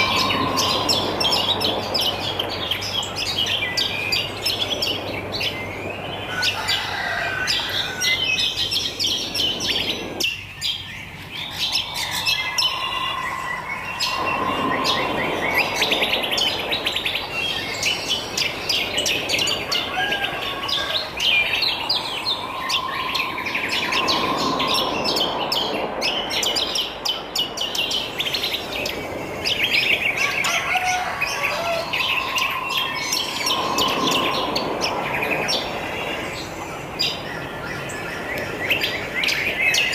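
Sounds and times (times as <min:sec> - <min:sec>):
songbirds chirping and trilling: 0:00.0 - 0:39.9
lower longer bird call: 0:11.5 - 0:17.5, 0:19.4 - 0:26.2, 0:30.2 - 0:36.6.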